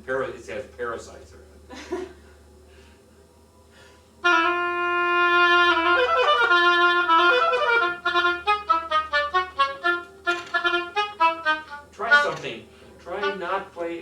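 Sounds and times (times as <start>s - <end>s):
oboe playing: 4.2s - 12.4s, 13.1s - 13.7s.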